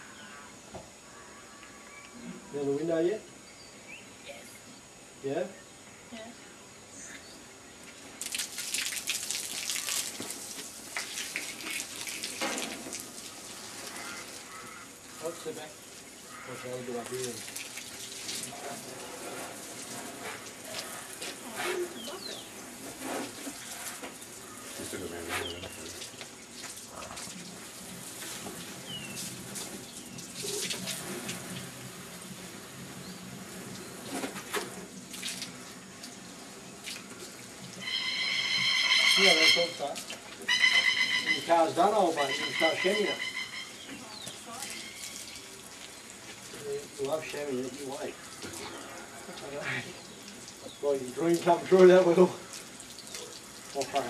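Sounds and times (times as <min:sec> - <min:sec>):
hose spraying water on car: 0:08.2 - 0:40.5, 0:44.2 - 0:54.0.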